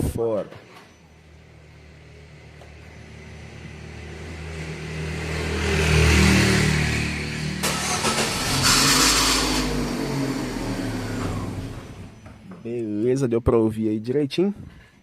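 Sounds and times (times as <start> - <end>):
car engine humming: 1.3 - 12.6.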